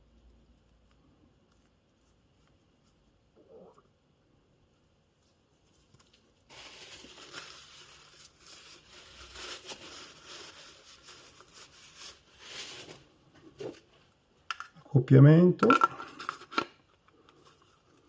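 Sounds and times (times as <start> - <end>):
soft rustling: 0.0 - 3.9, 4.6 - 14.2.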